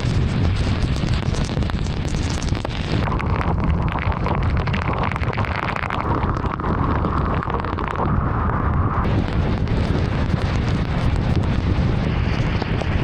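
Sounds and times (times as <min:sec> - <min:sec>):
car and tyres rumbling on wet road: 0:06.2 - 0:13.0.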